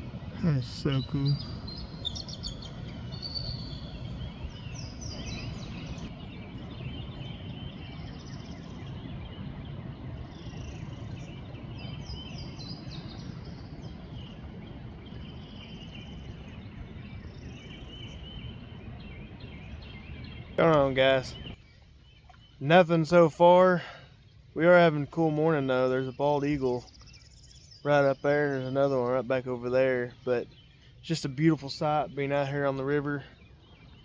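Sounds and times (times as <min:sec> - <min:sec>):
low rushing background: 0:00.0 - 0:21.6
birds chirping and trilling: 0:00.0 - 0:34.0.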